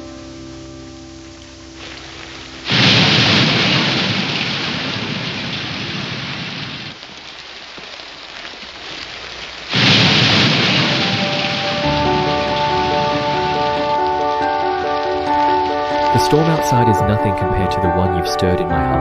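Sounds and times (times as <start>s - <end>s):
steady rain: 0.0s - 18.3s
loud thunder claps: 2.7s - 7.0s, 9.7s - 17.7s.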